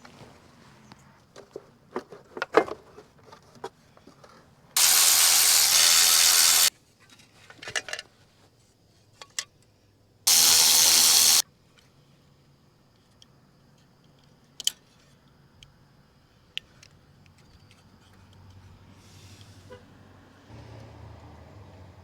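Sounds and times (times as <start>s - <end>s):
pneumatic tool blasts: 4.8s - 6.7s, 10.3s - 11.4s.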